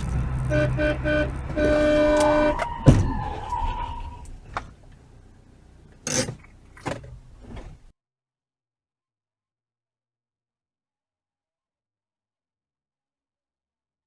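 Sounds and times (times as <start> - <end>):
car horn honking: 0.4 - 4.3.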